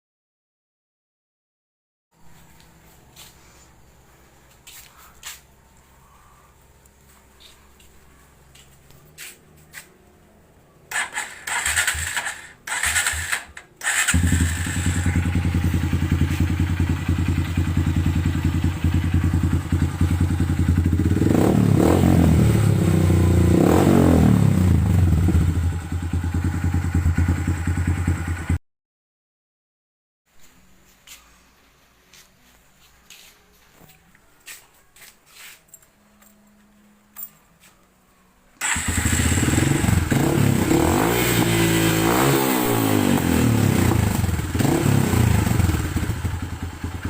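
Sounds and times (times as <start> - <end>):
motorcycle engine cranking: 10.9 - 17.3, 38.6 - 40.2
motorcycle engine idling and revving: 10.9 - 28.6, 38.6 - 47.0.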